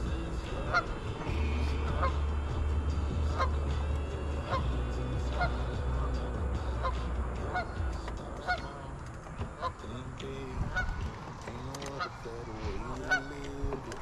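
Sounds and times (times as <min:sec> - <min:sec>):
honking bird calls: 0:00.0 - 0:14.0
low steady drone: 0:00.0 - 0:14.0.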